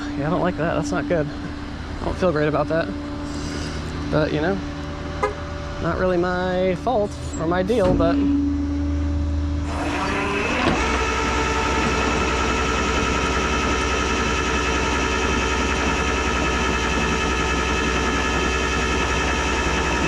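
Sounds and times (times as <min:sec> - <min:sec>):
vehicle engine hum: 0:00.0 - 0:20.0
drone of held tones: 0:07.3 - 0:20.0.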